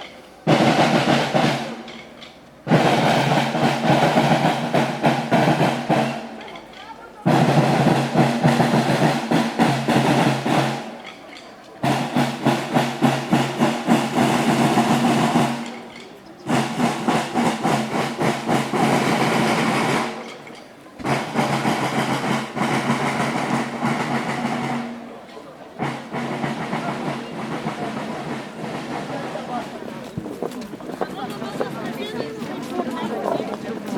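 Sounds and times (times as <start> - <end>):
snare drums playing rolls: 0.0 - 33.9.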